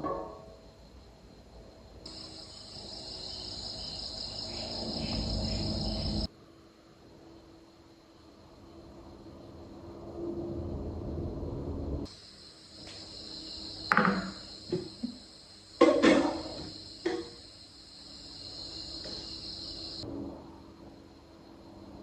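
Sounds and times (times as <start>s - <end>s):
high-pitched insect chirring: 2.1s - 6.3s
sharp knocks: 13.9s - 15.1s.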